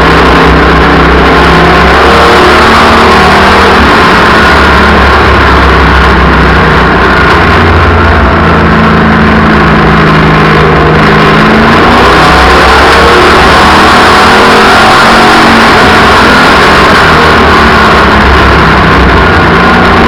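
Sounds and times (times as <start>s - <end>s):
race car engine: 0.0s - 20.0s.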